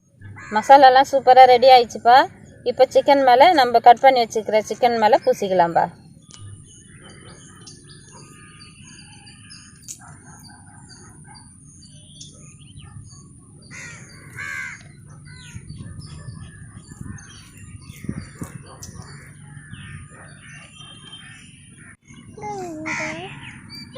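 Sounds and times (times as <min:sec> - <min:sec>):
birds chirping: 0:00.0 - 0:23.9
loud bird calls: 0:04.9 - 0:23.9.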